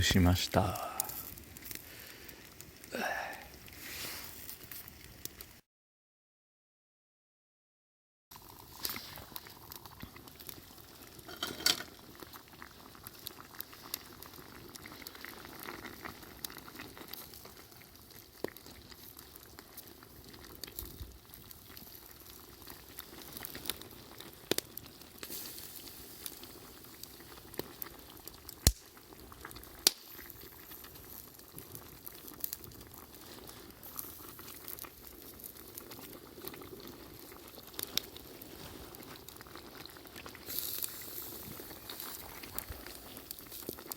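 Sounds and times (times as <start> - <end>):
soup pot bubbling: 8.3 - 43.9
sharp pops: 28.6 - 28.9.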